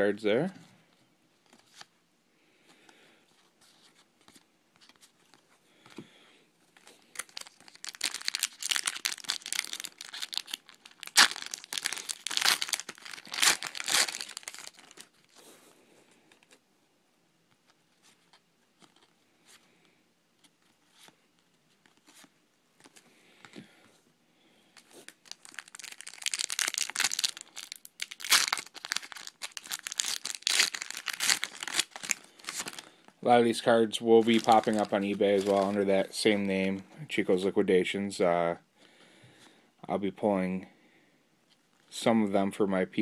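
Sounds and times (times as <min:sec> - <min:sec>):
wrapper tearing and crinkling: 0:06.8 - 0:15.4, 0:24.8 - 0:33.0, 0:34.2 - 0:35.8.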